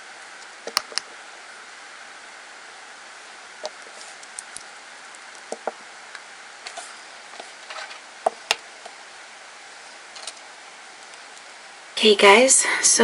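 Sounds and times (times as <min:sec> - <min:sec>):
steady background hiss: 0:00.0 - 0:13.0
small objects clicking and tapping: 0:00.6 - 0:01.1, 0:03.6 - 0:05.8, 0:10.1 - 0:10.4.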